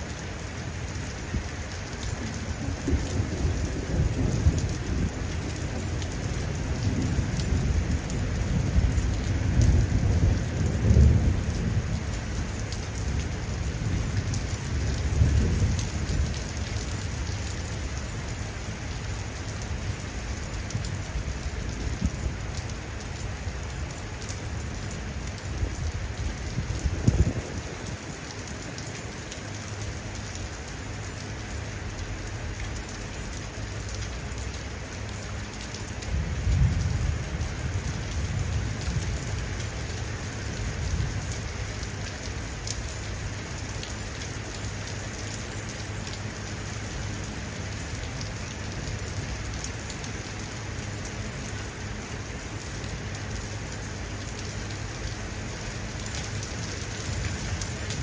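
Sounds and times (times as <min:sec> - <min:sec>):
rain pattering on surfaces: 0:00.0 - 0:58.0
thunder rumbling: 0:01.3 - 0:17.6, 0:25.5 - 0:28.2, 0:36.0 - 0:41.5.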